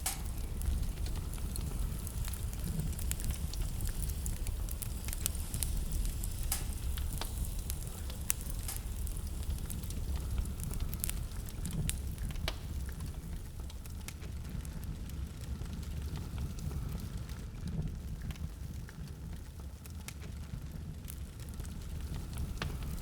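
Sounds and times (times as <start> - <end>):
sharp pops of fire: 0.0 - 14.6, 21.0 - 23.0
steady low rumble: 0.0 - 19.4, 20.6 - 23.0
burning wood crackling: 0.0 - 23.0.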